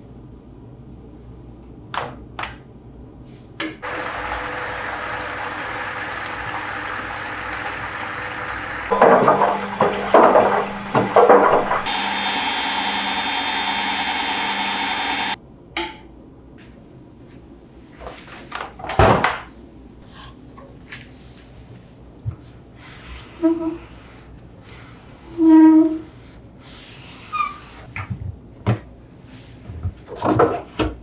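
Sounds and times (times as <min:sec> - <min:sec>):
water sloshing: 0:03.8 - 0:09.0
pump-like hum: 0:03.8 - 0:15.4
water rushing: 0:03.8 - 0:15.4.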